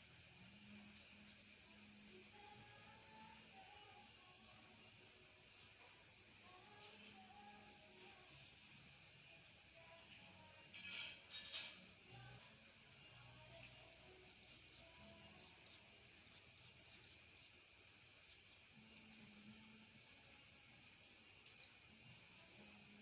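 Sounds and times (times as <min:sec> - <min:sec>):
high twittering chirps: 0:13.4 - 0:17.6.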